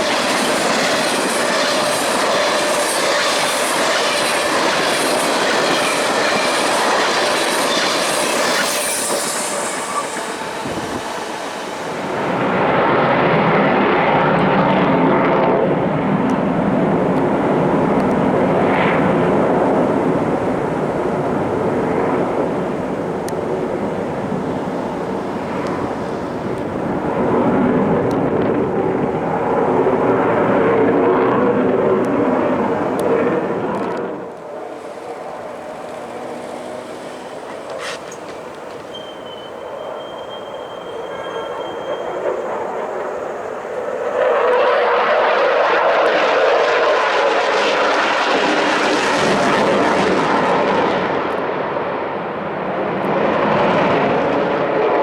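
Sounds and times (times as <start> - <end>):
train wheels clickety-clack: 0.0 - 12.3, 34.8 - 42.4
train rumble: 0.0 - 13.2, 16.2 - 44.6.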